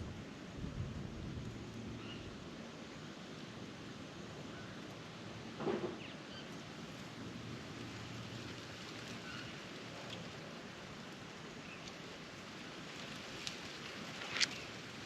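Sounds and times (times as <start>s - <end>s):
outdoor background hiss: 0.0s - 15.0s
knock or rustle: 5.6s - 6.1s.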